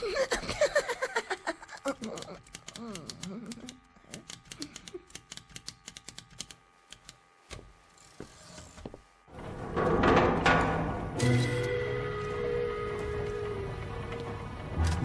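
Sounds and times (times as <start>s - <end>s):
mechanical clicking and ticking: 1.8s - 7.2s.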